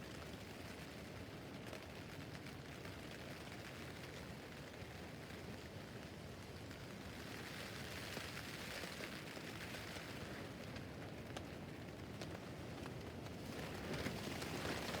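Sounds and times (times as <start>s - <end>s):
rain on tent fabric: 0.1s - 15.0s.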